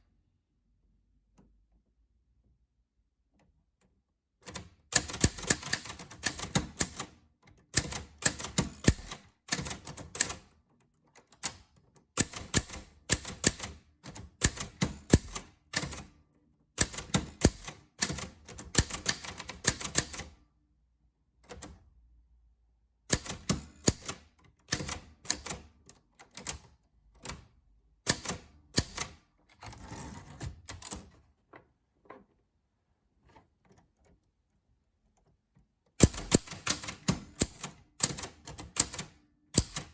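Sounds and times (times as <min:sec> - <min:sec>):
typewriter keys clacking: 0:04.5 - 0:10.5, 0:11.3 - 0:16.1, 0:16.8 - 0:20.3, 0:23.1 - 0:27.4, 0:36.0 - 0:39.9.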